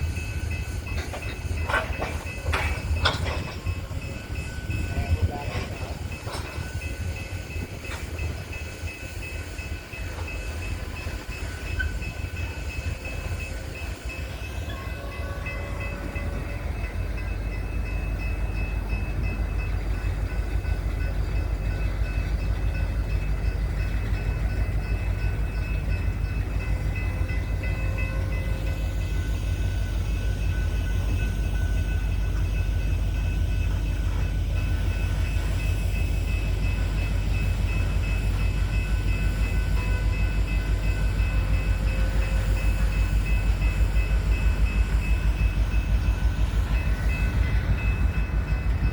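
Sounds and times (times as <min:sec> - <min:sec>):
train rumbling on rails: 0:00.0 - 0:48.9.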